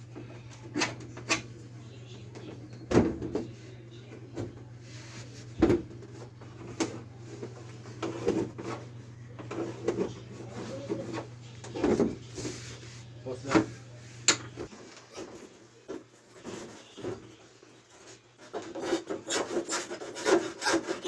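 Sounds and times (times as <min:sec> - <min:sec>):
steady low hum: 0:00.0 - 0:14.7.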